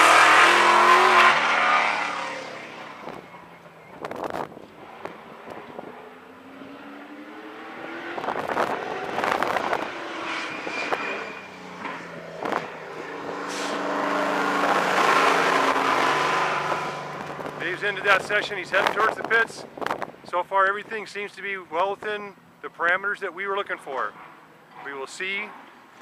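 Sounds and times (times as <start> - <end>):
race car engine on track: 0.0 - 20.3.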